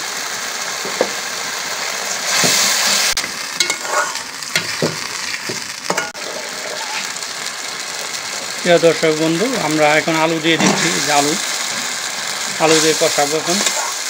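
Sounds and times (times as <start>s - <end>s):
masala sizzling in a pan: 0.0s - 14.0s
metal spatula scraping a pan: 3.2s - 5.0s, 5.9s - 7.1s.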